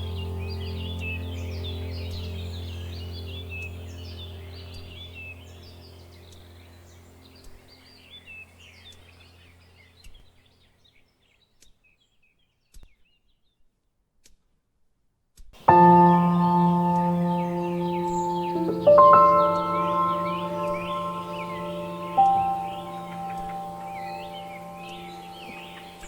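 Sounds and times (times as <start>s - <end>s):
music with held tones: 0.0s - 5.3s, 15.7s - 26.0s
soft ambient music: 0.0s - 7.5s, 15.6s - 26.0s
birds chirping and singing: 15.7s - 26.0s.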